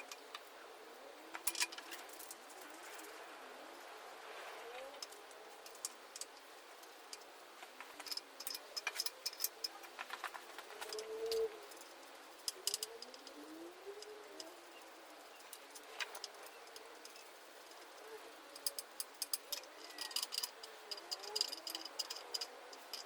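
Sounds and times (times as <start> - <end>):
metal parts clinking: 1.3 - 3.1, 8.0 - 9.8, 18.6 - 23.0
bird cooing: 10.7 - 11.7, 12.6 - 14.8.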